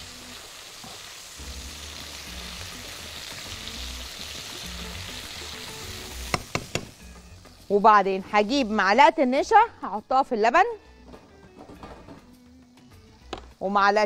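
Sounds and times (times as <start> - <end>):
food sizzling in frying pan: 0.0 - 10.0
low background music: 0.0 - 14.0.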